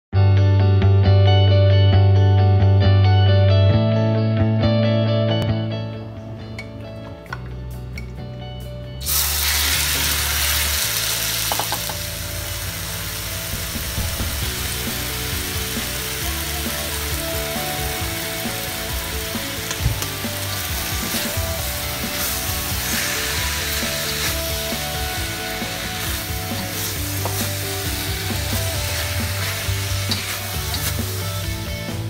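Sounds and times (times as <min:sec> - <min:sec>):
soft music with bass: 0:00.1 - 0:32.0
chicken sizzling in hot oil: 0:09.0 - 0:32.0.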